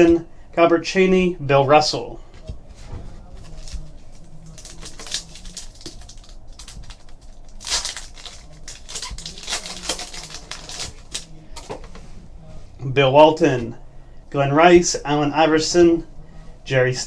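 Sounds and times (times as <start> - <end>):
foil pack crinkling: 2.8 - 12.0.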